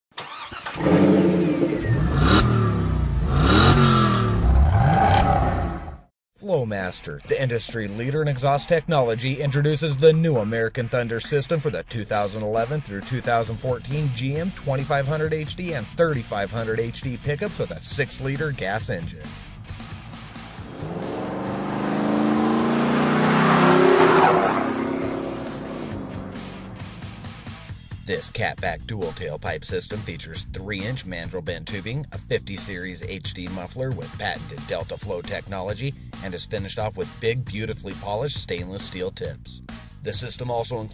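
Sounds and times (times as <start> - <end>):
car engine revving: 0.2 - 6.1, 19.7 - 27.7.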